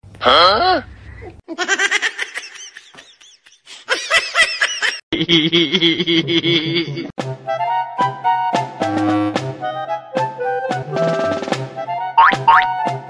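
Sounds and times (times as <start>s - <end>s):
people laughing: 1.5s - 7.1s
music: 7.2s - 13.0s.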